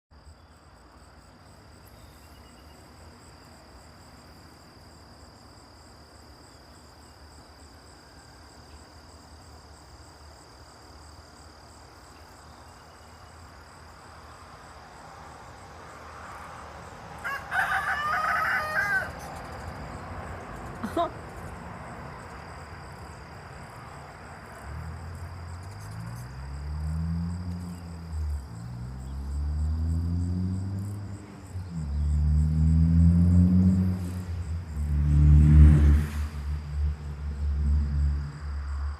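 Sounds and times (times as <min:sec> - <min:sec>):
loud rooster-like call: 0:17.2 - 0:19.4.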